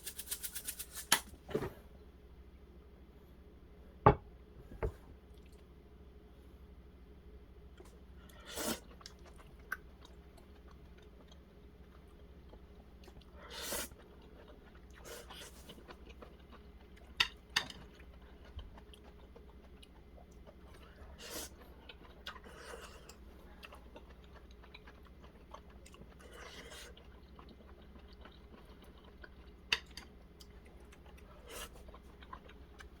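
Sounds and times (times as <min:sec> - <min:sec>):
faint steady hum: 0:00.0 - 0:33.0
person chewing and crunching: 0:08.8 - 0:33.0.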